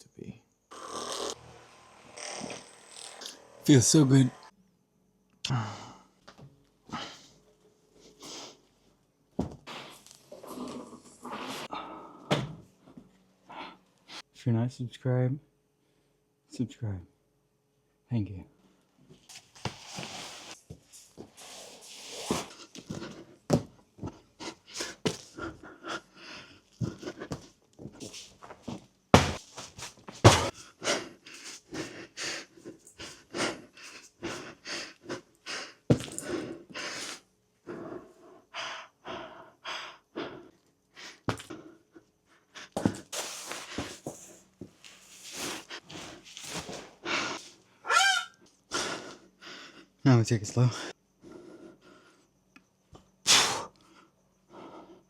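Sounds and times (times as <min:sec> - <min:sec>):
man breathing hard: 0:05.5 - 0:06.2, 0:11.3 - 0:12.3, 0:22.4 - 0:27.5, 0:30.2 - 0:44.2, 0:48.7 - 0:50.0.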